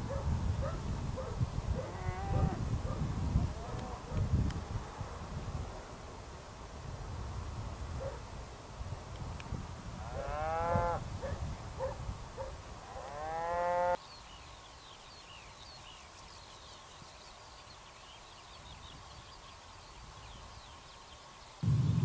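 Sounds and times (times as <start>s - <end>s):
cattle mooing: 1.9s - 2.6s, 12.9s - 14.0s
small birds chirping: 14.0s - 22.0s
low rumble: 21.6s - 22.0s.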